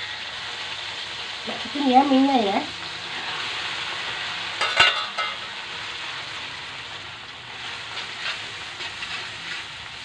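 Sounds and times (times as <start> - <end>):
noodles sizzling in hot oil: 0.0 - 10.0
metal spatula clinking on wok: 4.6 - 5.4.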